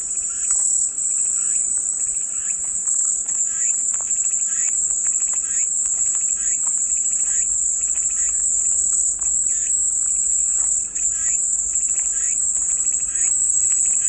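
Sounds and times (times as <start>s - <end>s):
cicadas buzzing: 11.0s - 14.0s.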